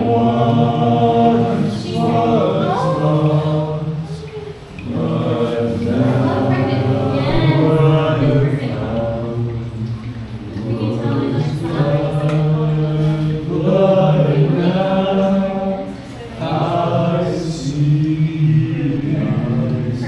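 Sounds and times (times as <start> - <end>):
group singing unaccompanied: 0.0 - 20.0.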